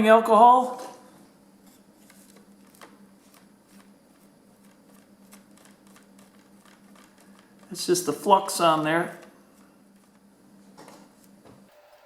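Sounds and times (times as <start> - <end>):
faint steady hum: 0.0 - 12.0
light scratching and ticking: 2.0 - 8.4.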